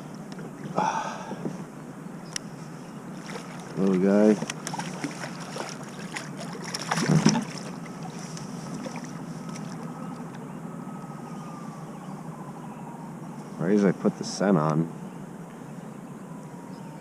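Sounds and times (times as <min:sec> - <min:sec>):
wind and water hiss: 0:00.0 - 0:10.3.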